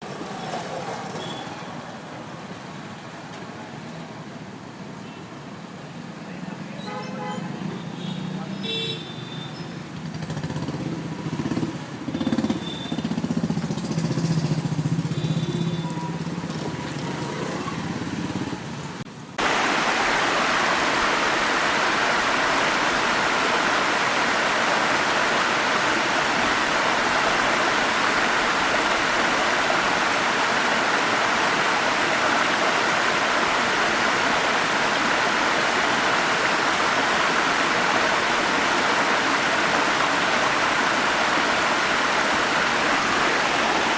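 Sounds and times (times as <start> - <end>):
traffic noise: 0.0 - 43.9
waterfall rushing: 19.4 - 43.9.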